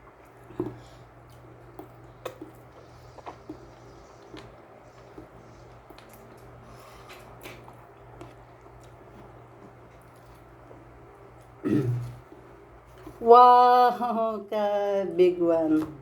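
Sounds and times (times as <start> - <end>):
person chewing: 0.0 - 13.2
steady low hum: 0.0 - 16.0.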